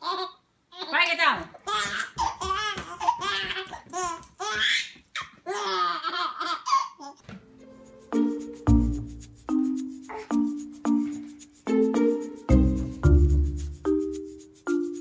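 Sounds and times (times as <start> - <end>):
baby laughing: 0.0 - 1.0, 1.6 - 7.2
music: 7.4 - 15.0.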